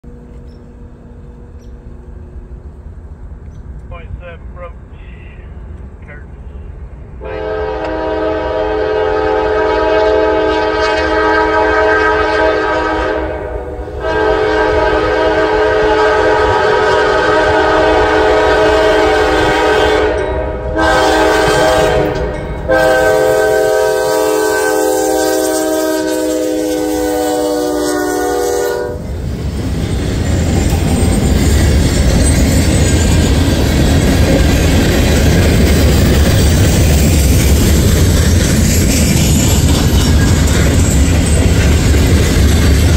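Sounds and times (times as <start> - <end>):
train passing with loud rumble: 0.0 - 42.9
locomotive air horn blasts: 7.2 - 29.1
wheels clacking over rail joints: 29.3 - 42.9.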